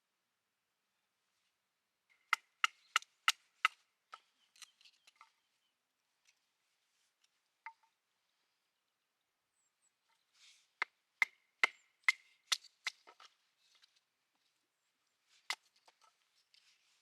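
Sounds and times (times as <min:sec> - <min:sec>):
axe chopping firewood: 0:10.8 - 0:13.3.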